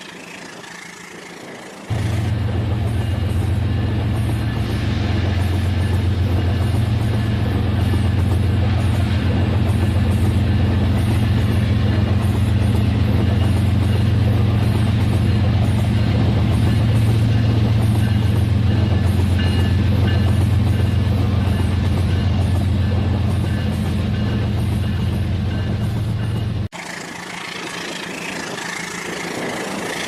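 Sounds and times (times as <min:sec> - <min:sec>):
toy train motor humming: 0:00.0 - 0:02.3.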